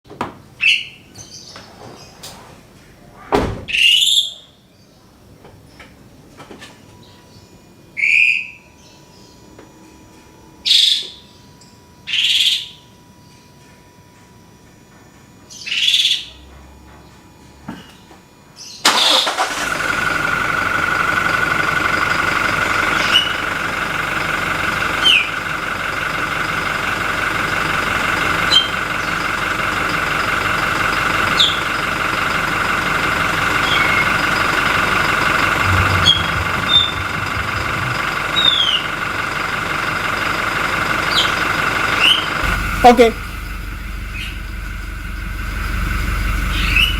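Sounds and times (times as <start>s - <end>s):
diesel engine starting and idling: 18.8s - 46.9s
turbocharger whine: 18.9s - 46.9s
bird chirps: 31.3s - 31.8s, 33.5s - 34.4s, 35.5s - 39.0s, 41.0s - 42.4s, 43.4s - 45.3s, 46.4s - 46.9s.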